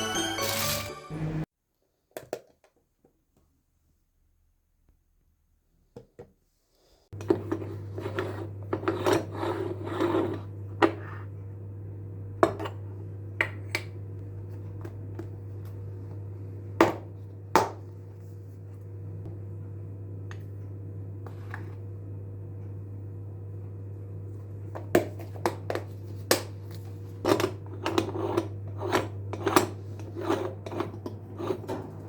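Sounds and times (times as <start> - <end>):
steady low hum: 7.2 - 32.0.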